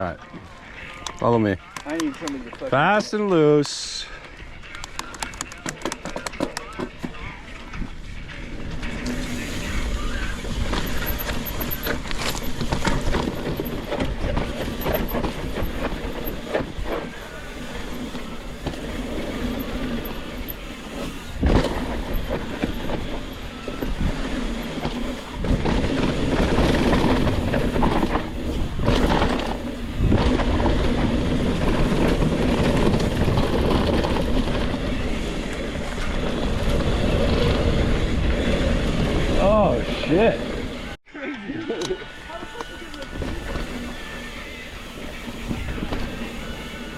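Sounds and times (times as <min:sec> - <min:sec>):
bike tyres on dirt and rock: 0:00.0 - 0:41.0, 0:42.2 - 0:46.9
bike clattering over bumps: 0:05.0 - 0:41.0.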